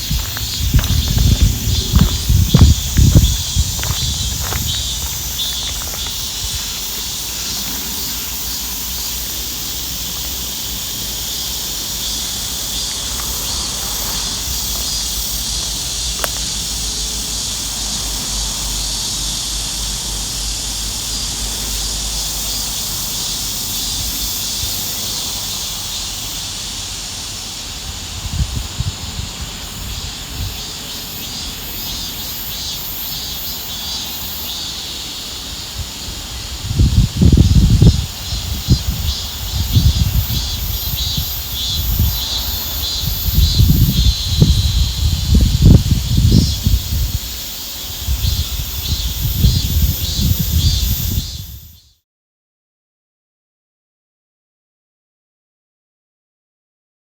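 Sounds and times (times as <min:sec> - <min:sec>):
low rumble: 0:00.0 - 0:06.0
insects chirring: 0:00.0 - 0:52.0.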